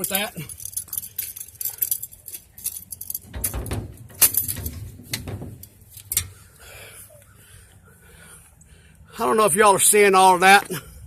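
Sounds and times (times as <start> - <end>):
jingling metal rattles: 0.0 - 6.4.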